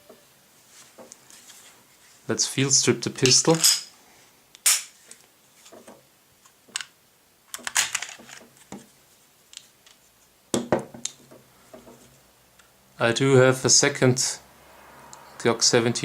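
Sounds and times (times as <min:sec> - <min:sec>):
pistol parts clicking and rattling: 0:03.3 - 0:03.9, 0:04.6 - 0:04.9, 0:06.7 - 0:08.5.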